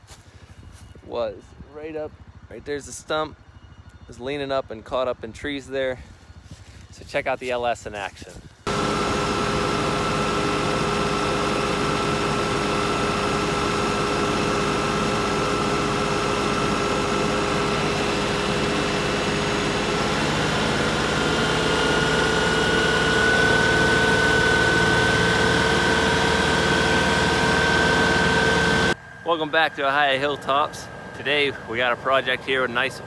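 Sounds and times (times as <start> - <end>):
tractor diesel engine running: 8.7 - 33.0.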